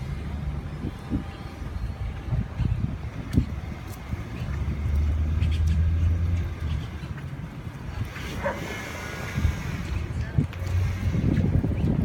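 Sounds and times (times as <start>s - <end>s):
vehicle humming: 0.0s - 12.0s.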